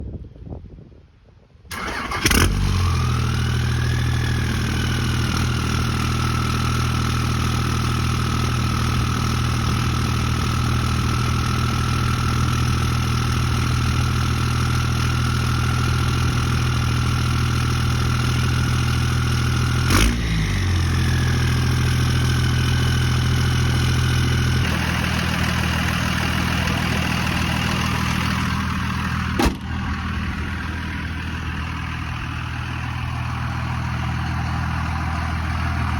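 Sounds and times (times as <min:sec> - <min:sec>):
diesel engine idling: 0:01.7 - 0:35.9
sharp knock: 0:29.4 - 0:29.7.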